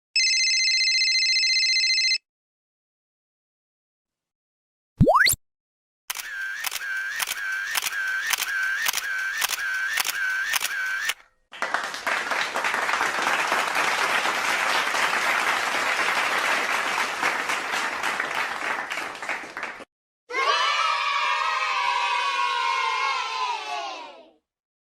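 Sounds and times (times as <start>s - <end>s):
camera shutter clicking: 6.1s - 11.2s
applause: 11.5s - 19.9s.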